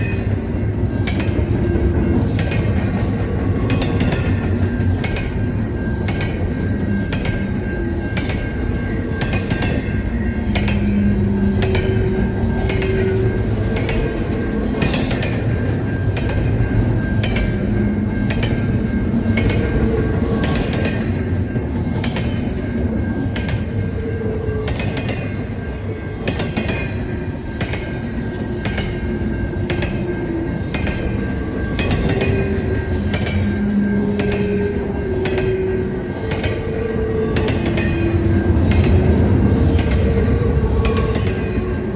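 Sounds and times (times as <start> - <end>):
train rail rumble: 0.0 - 41.9.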